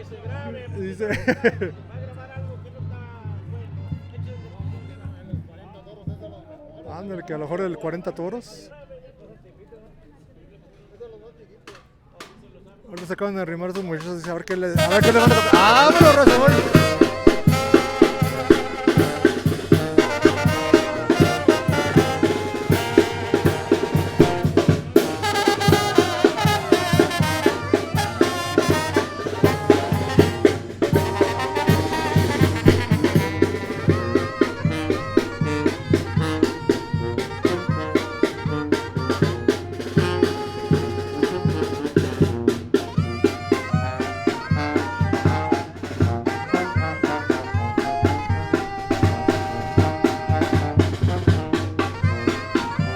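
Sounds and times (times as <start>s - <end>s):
bass drum and snare beat: 13.0s - 52.9s
brass band playing: 14.5s - 52.9s.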